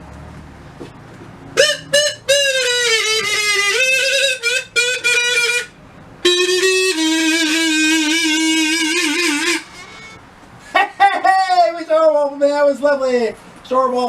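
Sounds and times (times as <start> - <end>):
solo violin-like melody: 1.6 - 10.3.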